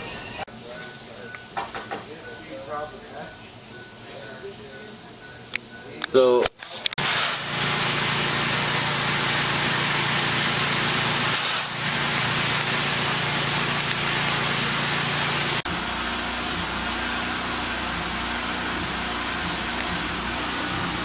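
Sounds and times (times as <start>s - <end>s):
boat engine running: 7.0s - 21.0s.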